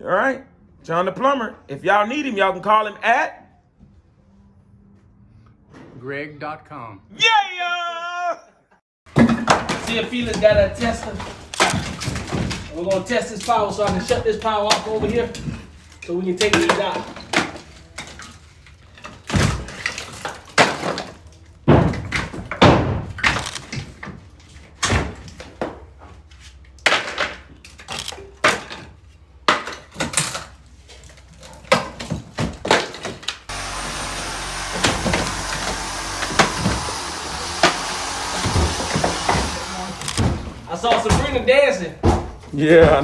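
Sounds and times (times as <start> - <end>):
construction knocks and thuds: 9.1 - 26.2, 31.6 - 43.0.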